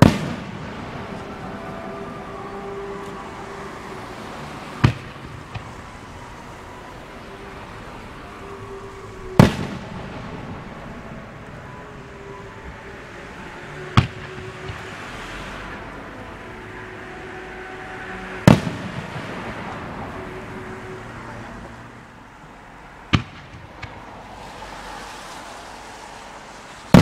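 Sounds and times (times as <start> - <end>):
firework shells booming: 0.0 - 1.5, 4.8 - 6.2, 9.3 - 11.6, 18.5 - 19.8, 23.1 - 24.1.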